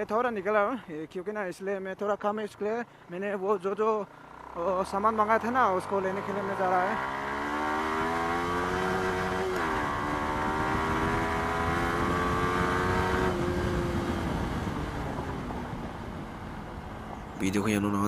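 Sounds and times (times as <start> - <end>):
motorcycle engine accelerating: 4.0 - 18.0
wind rumble: 9.7 - 17.4.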